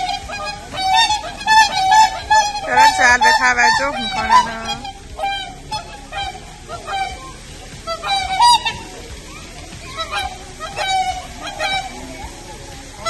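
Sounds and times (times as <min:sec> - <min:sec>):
waterfowl honking: 0:00.0 - 0:13.0.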